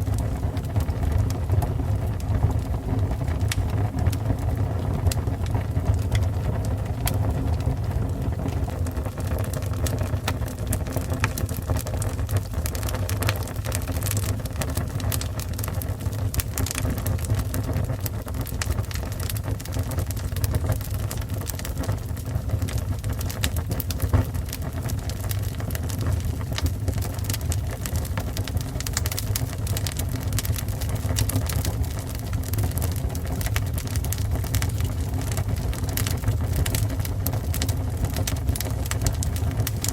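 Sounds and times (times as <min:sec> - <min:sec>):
fire crackling and popping: 0:00.0 - 0:39.9
fire rumbling: 0:00.0 - 0:39.9.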